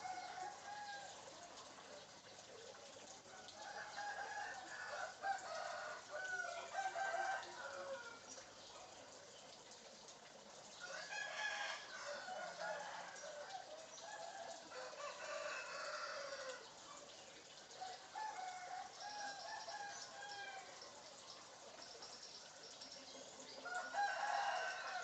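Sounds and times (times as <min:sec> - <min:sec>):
chicken clucking and crowing: 0:10.8 - 0:16.6, 0:23.6 - 0:25.0.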